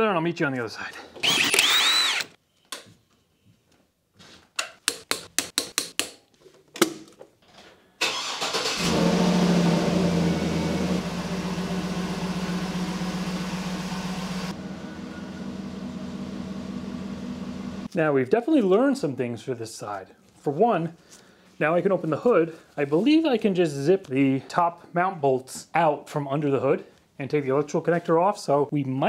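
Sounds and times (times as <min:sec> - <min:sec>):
starter motor whirring: 0:01.2 - 0:02.4, 0:08.0 - 0:17.9
car engine starting and idling: 0:08.0 - 0:17.9.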